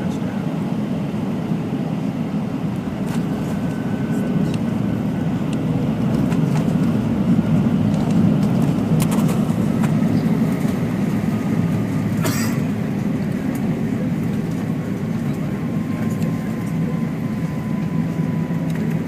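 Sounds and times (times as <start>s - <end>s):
airliner cabin rumble: 0.0s - 19.0s.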